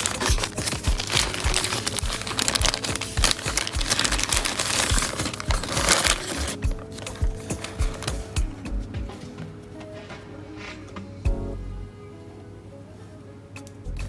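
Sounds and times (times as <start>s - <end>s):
packaging crinkling: 0.0s - 8.4s
background music with steady beat: 0.0s - 14.0s.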